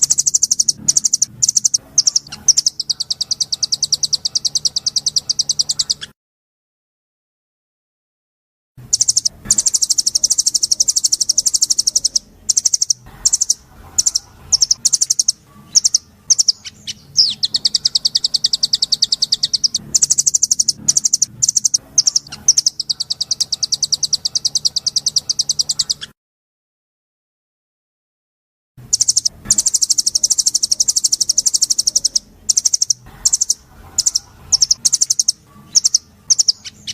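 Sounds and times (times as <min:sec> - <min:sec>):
songbird trilling and chirping: 0:00.0 - 0:06.1, 0:08.9 - 0:26.1, 0:28.8 - 0:36.9.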